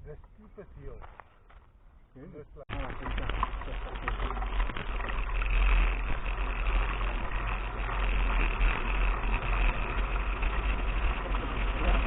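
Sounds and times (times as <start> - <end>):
tyres rolling over dirt: 2.7 - 12.0
wind rumble: 2.7 - 12.0.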